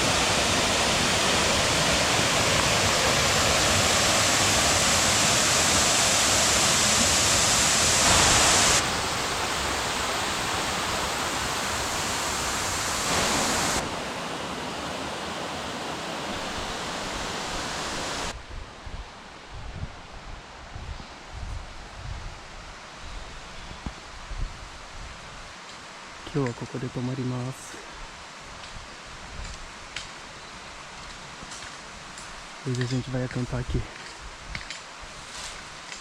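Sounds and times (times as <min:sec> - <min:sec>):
stream rushing over rocks: 0:00.0 - 0:18.4.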